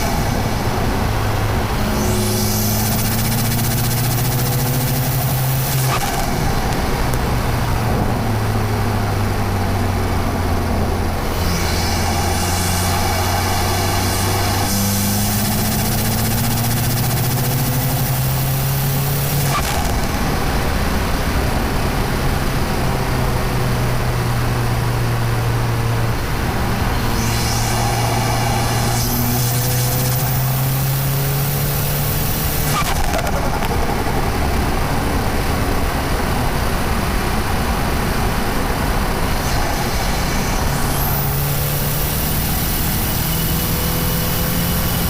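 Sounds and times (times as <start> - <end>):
turbocharged car engine accelerating: 0.0 - 45.0
turbo whistle: 26.8 - 31.2.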